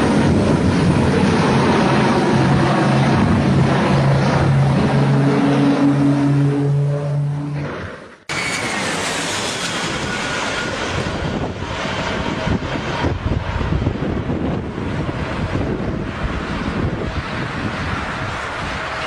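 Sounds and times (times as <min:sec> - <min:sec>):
wind buffeting microphone: 0:00.0 - 0:05.9, 0:09.8 - 0:19.0.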